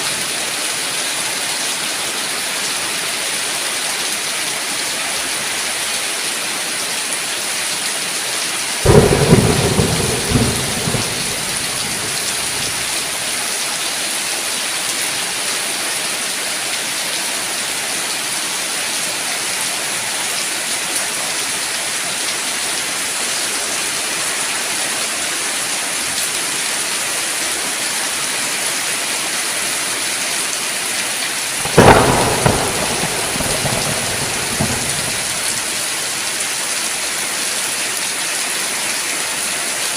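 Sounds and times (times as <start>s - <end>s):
heavy rain: 0.0s - 39.9s
sharp thunderclaps: 8.9s - 13.2s, 31.6s - 35.9s.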